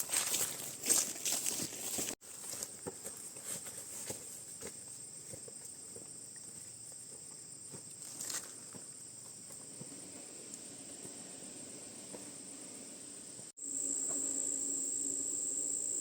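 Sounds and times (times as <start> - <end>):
footsteps in undergrowth: 0.0 - 10.0
insects chirring: 2.3 - 16.0.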